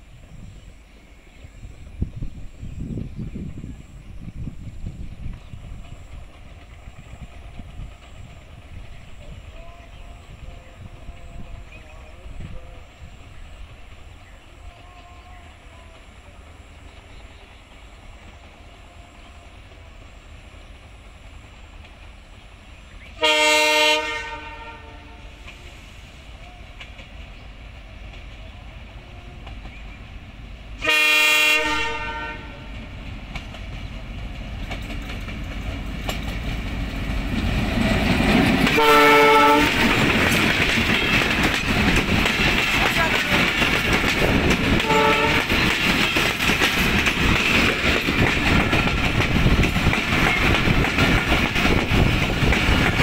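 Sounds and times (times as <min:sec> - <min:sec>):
train rumble: 0:00.0 - 0:53.0
multi-tone train horn: 0:09.2 - 0:13.4, 0:14.3 - 0:16.7, 0:18.3 - 0:20.1, 0:23.1 - 0:27.0, 0:28.4 - 0:29.8, 0:30.8 - 0:33.0, 0:38.6 - 0:41.4, 0:44.4 - 0:46.4.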